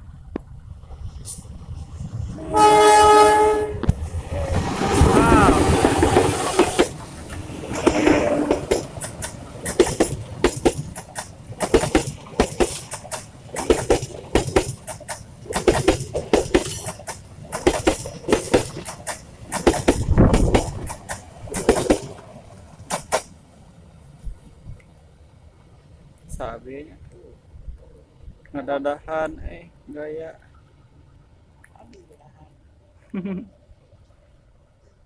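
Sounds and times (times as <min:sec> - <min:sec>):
low train rumble: 0:00.0 - 0:33.0
train wheels clacking over rail joints: 0:03.9 - 0:23.4.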